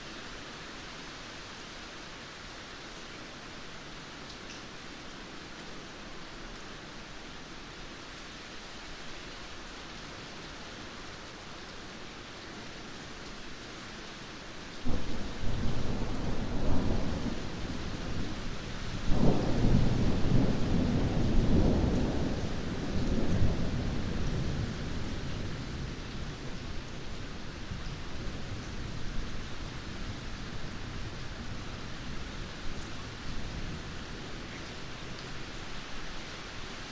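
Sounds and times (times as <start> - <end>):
rain hiss: 0.0 - 36.9
thunder rumbling: 14.9 - 25.3.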